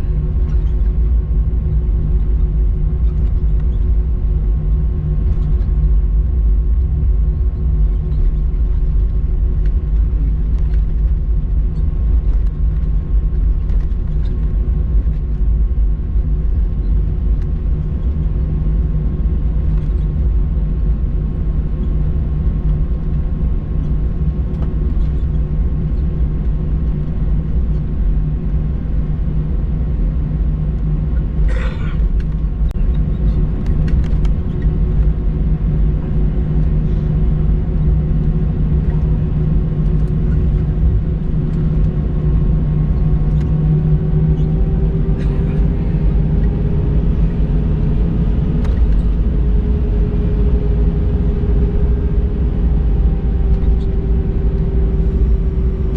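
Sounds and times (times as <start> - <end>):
airplane cabin engine rumble: 0.0 - 55.9.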